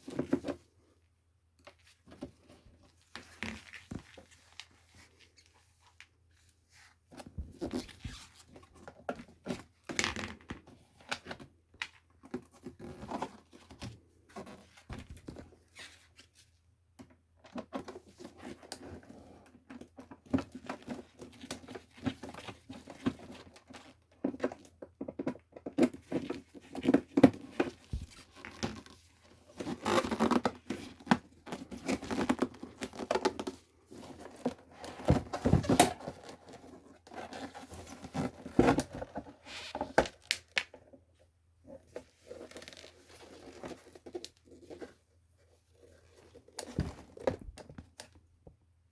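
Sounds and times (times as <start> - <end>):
plastic and wiring rustling: 19.7 - 40.9.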